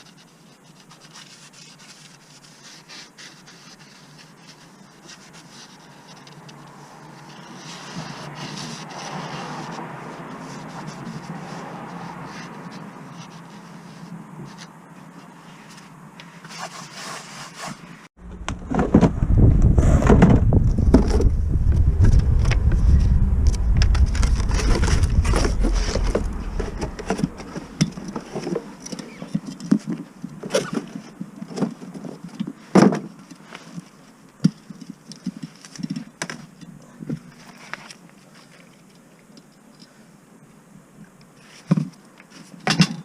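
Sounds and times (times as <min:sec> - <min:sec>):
low rumble: 0:18.2 - 0:28.8.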